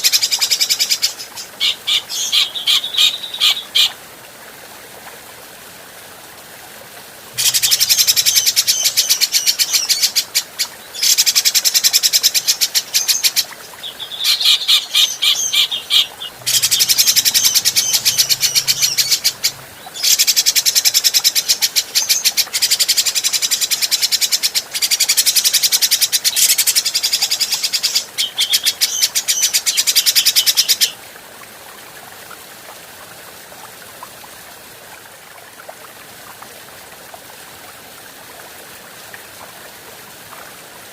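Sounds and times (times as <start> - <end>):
faint steady hiss: 0.0 - 40.9
bird singing chattering phrases: 7.4 - 10.2, 14.2 - 20.3.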